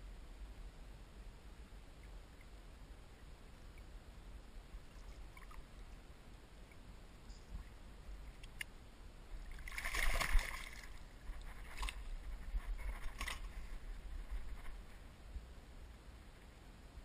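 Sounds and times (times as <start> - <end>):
fish splashing in water: 9.5 - 11.0.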